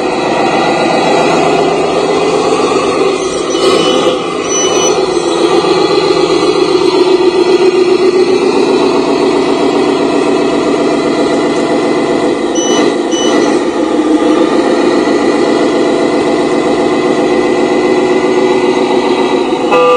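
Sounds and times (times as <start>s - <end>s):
truck engine running: 0.0s - 19.9s
short high beeps: 3.3s - 5.2s, 12.6s - 13.6s.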